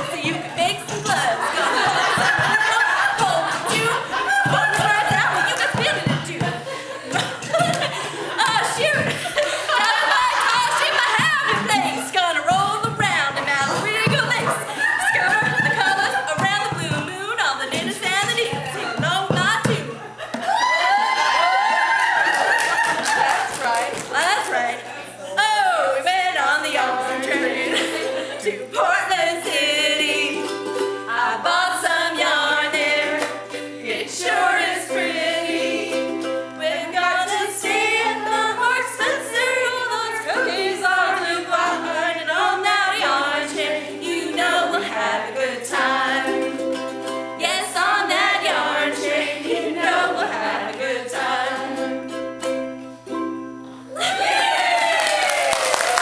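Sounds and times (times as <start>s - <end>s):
people clapping: 1.8s - 11.8s, 20.3s - 25.0s, 33.2s - 33.6s, 54.0s - 56.0s.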